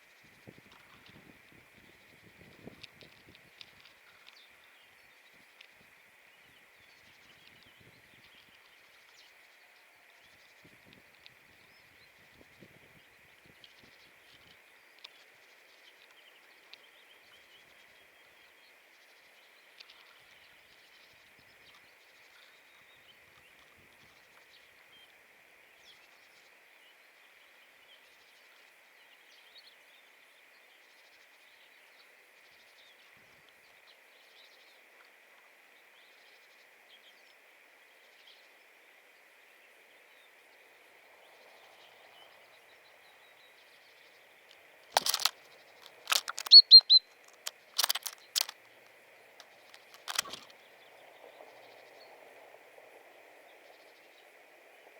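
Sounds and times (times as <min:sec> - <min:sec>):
small birds calling: 0:44.9 - 0:48.8, 0:49.4 - 0:50.8.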